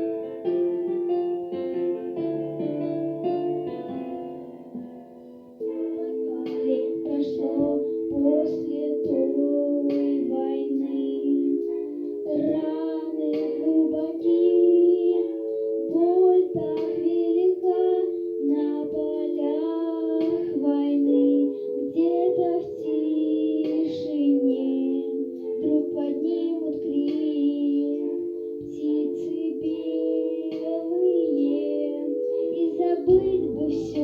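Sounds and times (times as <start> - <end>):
held accompaniment chords: 0.0 - 34.0
high voice singing: 24.6 - 34.0.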